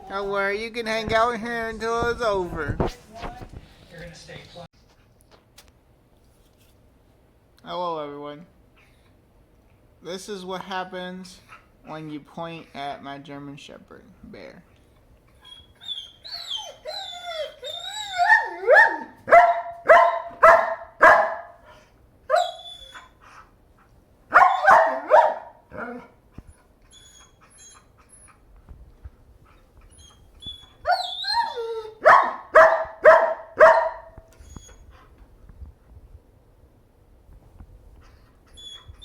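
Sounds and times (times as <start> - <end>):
dog whining: 15.3 - 19.8, 22.3 - 23.2, 24.4 - 28.4, 29.6 - 35.1, 38.0 - 39.0
dog barking: 18.2 - 21.6, 22.3 - 22.6, 24.3 - 26.0, 32.0 - 34.2.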